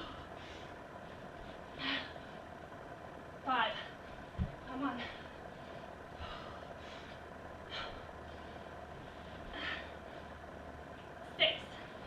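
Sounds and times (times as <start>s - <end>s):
woman breathing hard: 0.0s - 2.7s, 4.8s - 10.7s
low room hum: 0.0s - 12.0s.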